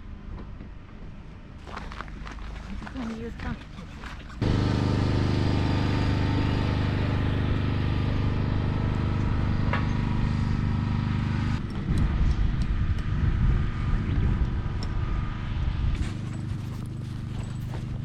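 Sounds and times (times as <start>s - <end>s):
vehicle engine running: 4.0s - 18.0s.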